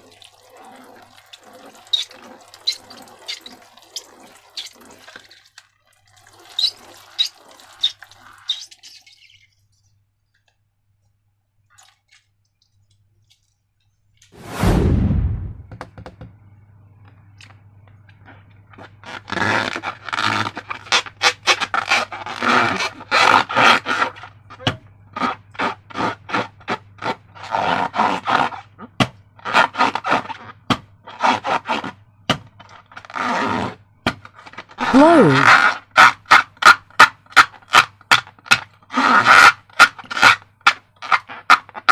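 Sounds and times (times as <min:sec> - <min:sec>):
loud sudden burst: 0:14.4 - 0:15.8
slime squelching: 0:34.8 - 0:35.5.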